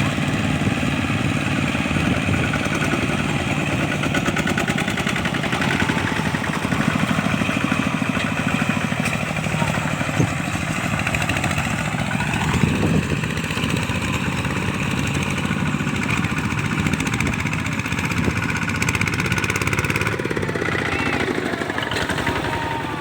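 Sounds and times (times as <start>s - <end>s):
walking tractor diesel engine chugging: 0.0s - 23.0s.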